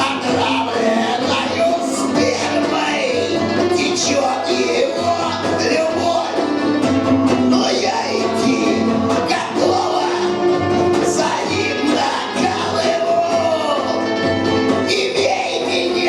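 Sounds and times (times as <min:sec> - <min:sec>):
person singing: 0:00.0 - 0:16.0
punk rock band playing live: 0:00.0 - 0:16.0.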